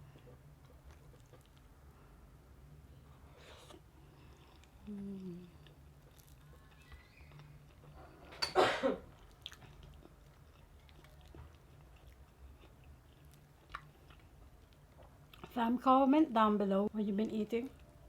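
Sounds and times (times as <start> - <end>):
quiet chewing: 0.0 - 2.1, 3.0 - 8.5, 9.1 - 15.6.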